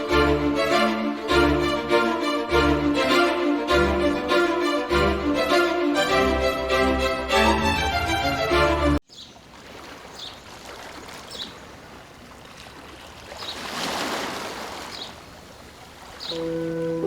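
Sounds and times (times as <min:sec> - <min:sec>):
string music: 0:00.0 - 0:09.0, 0:16.3 - 0:17.0
running water rushing: 0:09.4 - 0:17.0.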